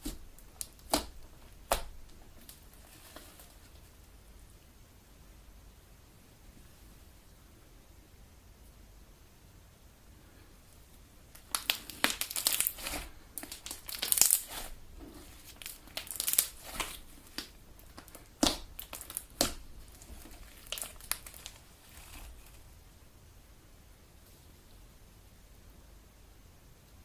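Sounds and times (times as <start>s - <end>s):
slime squelching and popping: 0.0s - 3.6s, 11.3s - 22.6s.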